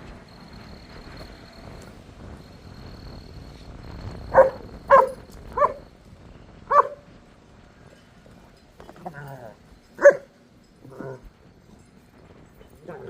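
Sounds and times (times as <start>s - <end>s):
faint high insect-like whine: 0.0s - 13.0s
dog barking: 4.3s - 5.9s, 6.7s - 7.0s, 10.0s - 10.3s.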